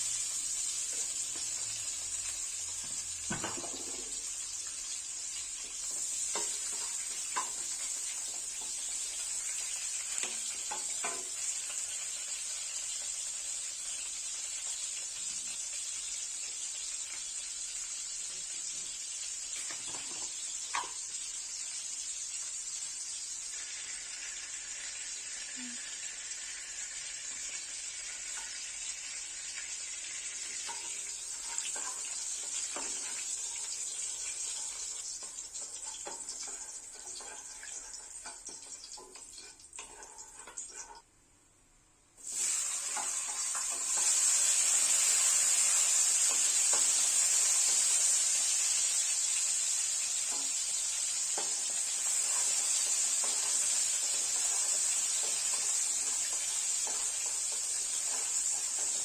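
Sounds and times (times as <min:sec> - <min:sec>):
food sizzling in oil: 0:00.0 - 0:41.1, 0:42.2 - 0:59.0
utensil tapping and scraping pan: 0:05.8 - 0:09.0, 0:10.2 - 0:11.4, 0:30.4 - 0:41.1, 0:46.2 - 0:48.1, 0:50.3 - 0:59.0.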